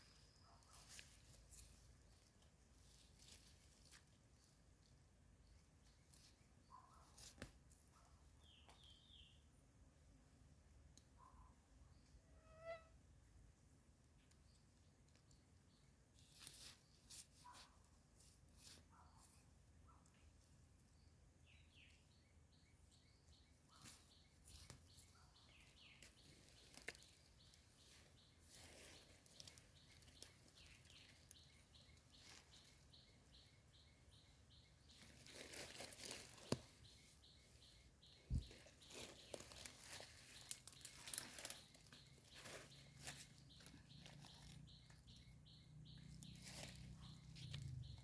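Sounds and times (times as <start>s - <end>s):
leaf litter crunching and rustling: 0.7s - 4.3s, 25.7s - 32.9s, 34.9s - 37.4s, 38.3s - 45.0s, 45.9s - 48.0s.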